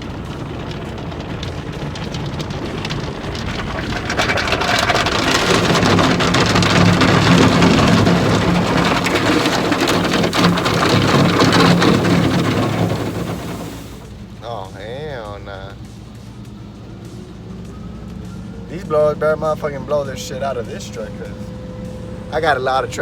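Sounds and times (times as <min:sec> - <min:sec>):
steady machine hum: 0:00.0 - 0:23.0
water spray pelting a vehicle: 0:00.0 - 0:23.0.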